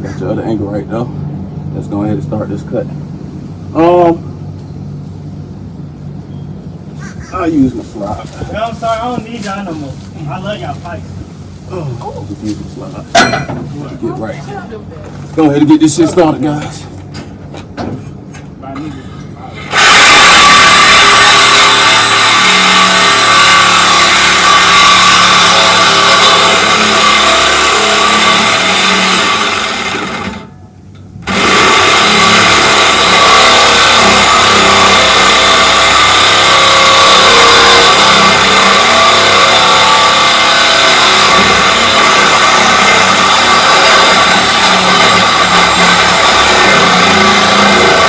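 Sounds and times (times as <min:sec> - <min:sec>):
reciprocating saw cutting metal pipe: 0:19.6 - 0:30.5, 0:31.2 - 0:48.0.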